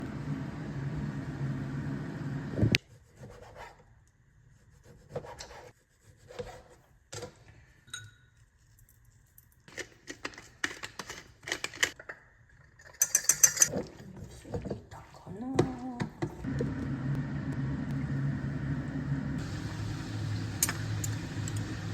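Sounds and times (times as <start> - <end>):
utensils knocking and scraping: 12.8 - 13.9.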